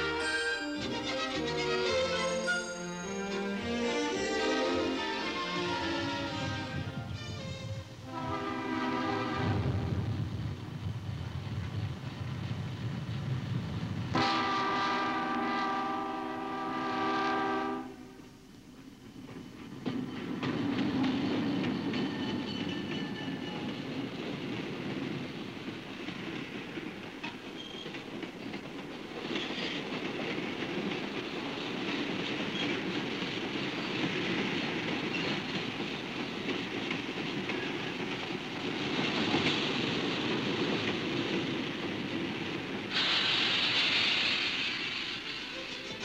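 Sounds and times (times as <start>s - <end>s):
railroad cars rolling past: 0.0s - 46.0s
wheels clicking over rail joints: 19.1s - 46.0s
loud hiss: 42.6s - 46.0s.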